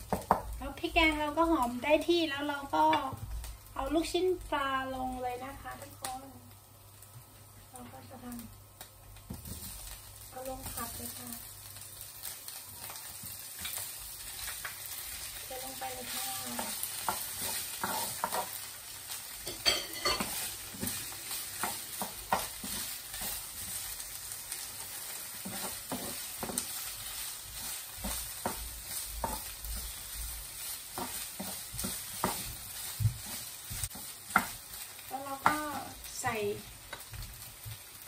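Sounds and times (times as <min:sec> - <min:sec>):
fish balls sizzling in oil: 0:00.0 - 0:38.0
spatula scraping and knocking pan: 0:16.0 - 0:18.7, 0:19.4 - 0:23.9, 0:25.1 - 0:35.9.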